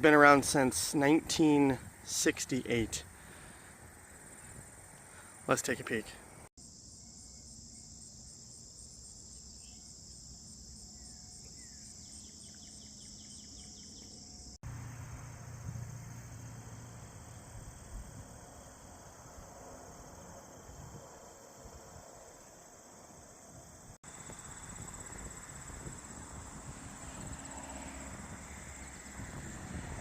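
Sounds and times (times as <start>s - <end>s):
soft outdoor hiss: 0.0s - 19.4s
crickets chirping: 0.6s - 30.0s.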